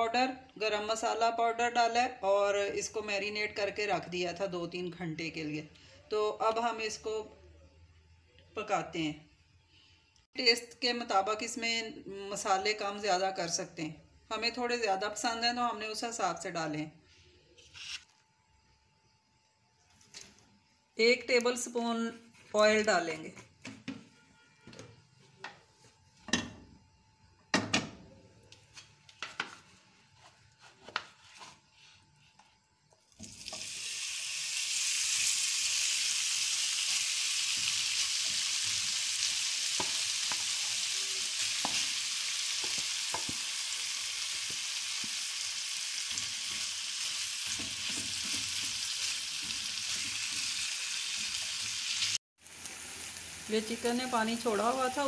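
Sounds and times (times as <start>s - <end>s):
chicken sizzling in oil: 33.1s - 55.0s.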